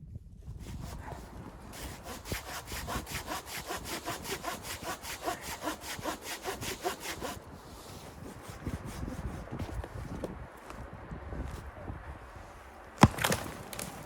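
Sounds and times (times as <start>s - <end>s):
hand saw cutting wood: 0.6s - 9.8s.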